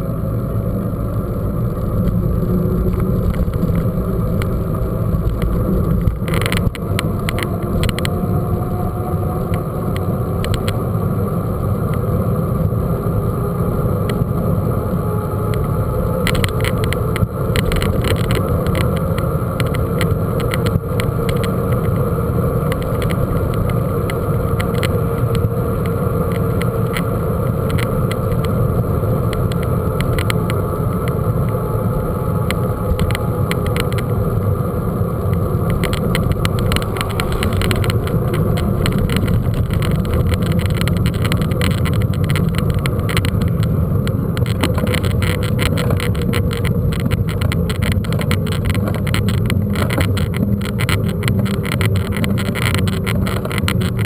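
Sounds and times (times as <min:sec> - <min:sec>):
tyres on rough ground: 0:00.0 - 0:08.4, 0:15.5 - 0:54.0
wind on microphone: 0:00.0 - 0:54.0
bike rattling clicks: 0:02.8 - 0:08.3, 0:15.5 - 0:28.6, 0:35.2 - 0:54.0.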